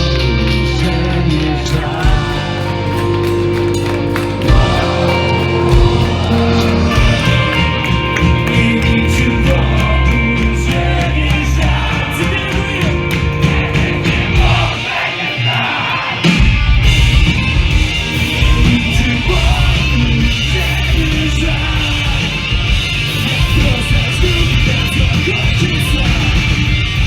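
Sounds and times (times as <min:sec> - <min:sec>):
distorted guitars: 0:00.0 - 0:27.0
live punk band playing: 0:00.0 - 0:27.0
yelled vocals: 0:00.0 - 0:27.0.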